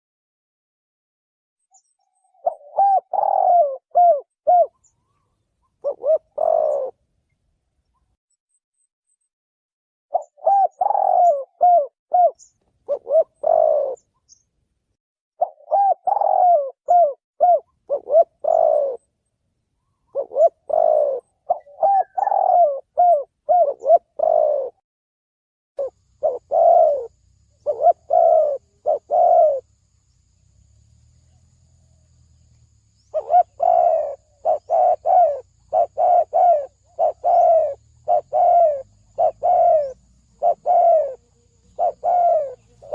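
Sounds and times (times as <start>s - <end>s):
dove cooing: 2.4s - 7.0s, 10.1s - 14.1s, 15.4s - 19.1s, 20.0s - 24.8s, 25.8s - 29.7s, 33.1s - 42.9s.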